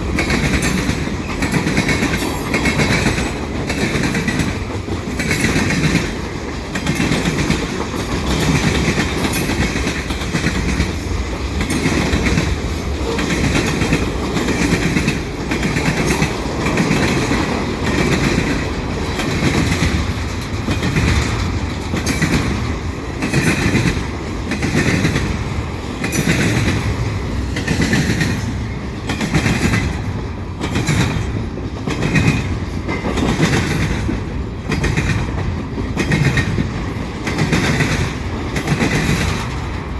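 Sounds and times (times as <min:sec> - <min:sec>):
freight train passing: 0:00.0 - 0:39.9
wheels clattering over rail joints: 0:00.0 - 0:39.9.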